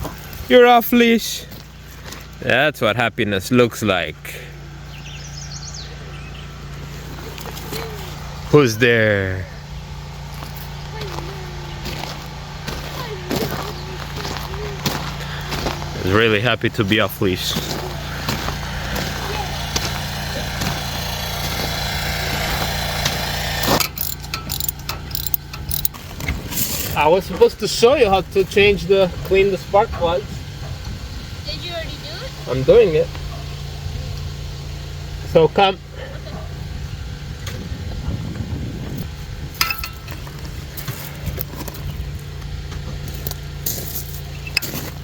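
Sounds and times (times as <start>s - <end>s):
small engine running: 3.7s - 45.0s
metallic clinks of tools: 23.8s - 26.0s.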